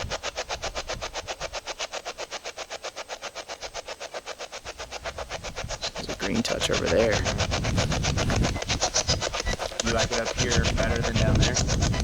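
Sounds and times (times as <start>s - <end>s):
radio static bursts: 4.8s - 12.0s.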